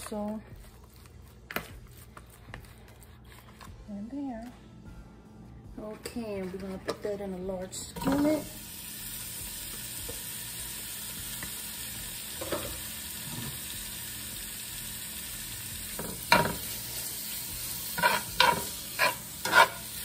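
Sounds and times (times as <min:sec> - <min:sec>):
chicken sizzling in oil: 0:08.1 - 0:20.0
utensil scraping and knocking pan: 0:18.0 - 0:19.9.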